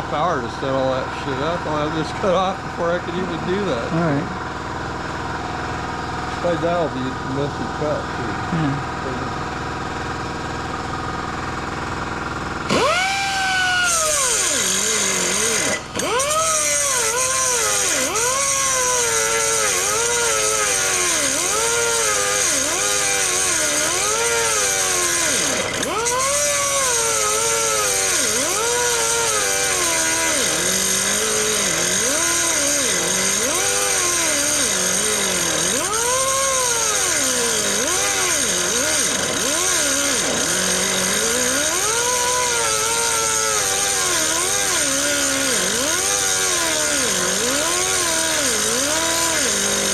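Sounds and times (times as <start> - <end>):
angle grinder cutting steel: 12.6 - 49.9.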